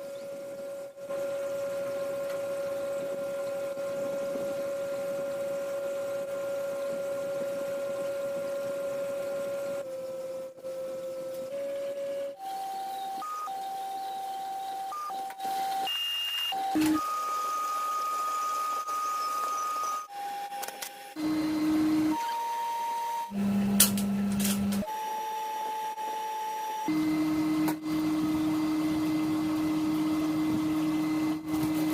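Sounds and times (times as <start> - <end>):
small electric motor whining: 0.0 - 31.9.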